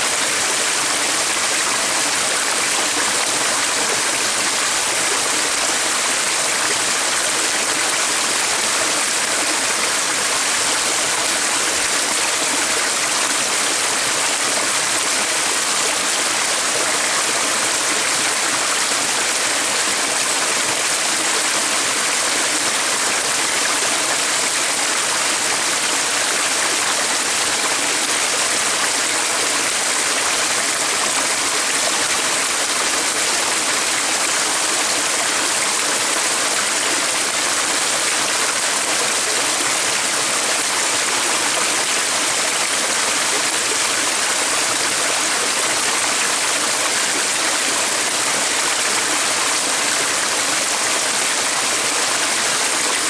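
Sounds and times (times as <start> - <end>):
stream water running: 0.0 - 53.0.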